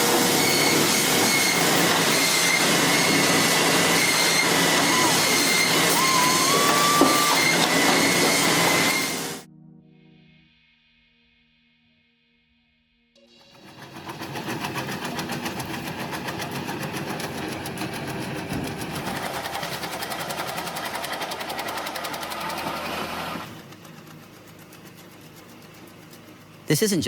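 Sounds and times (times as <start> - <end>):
machine rattling: 13.5 - 26.6.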